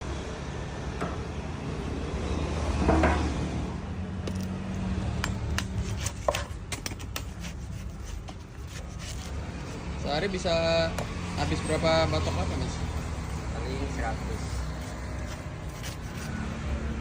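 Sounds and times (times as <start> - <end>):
hard objects knocking and clinking: 5.2 - 7.4.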